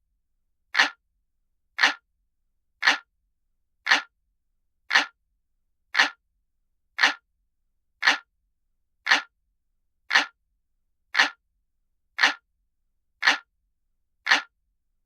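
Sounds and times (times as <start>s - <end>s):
clock ticking: 0.8s - 1.0s, 1.8s - 2.0s, 2.8s - 3.1s, 3.9s - 4.1s, 4.9s - 5.2s, 6.0s - 6.2s, 7.0s - 7.2s, 8.0s - 8.3s, 9.1s - 9.3s, 10.1s - 10.4s, 11.2s - 11.4s, 12.2s - 12.4s, 13.2s - 13.5s, 14.3s - 14.5s.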